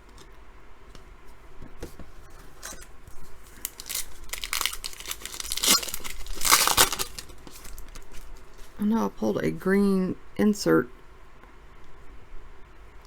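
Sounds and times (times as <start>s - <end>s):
foil wrapper crinkling and tearing: 3.4s - 8.8s.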